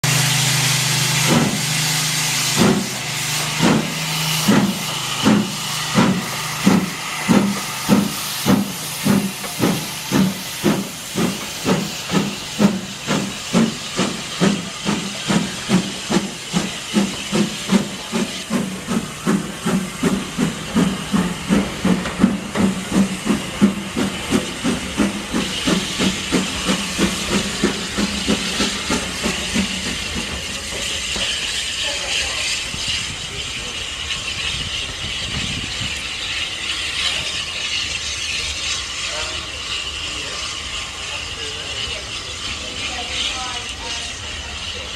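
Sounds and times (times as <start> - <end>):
steam hissing: 0.0 - 44.9
steam locomotive chuffing: 0.0 - 44.9.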